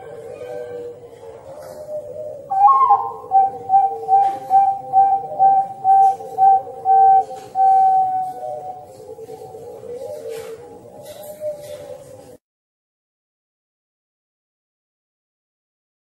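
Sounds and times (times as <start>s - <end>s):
steady low tones: 0.0s - 11.0s.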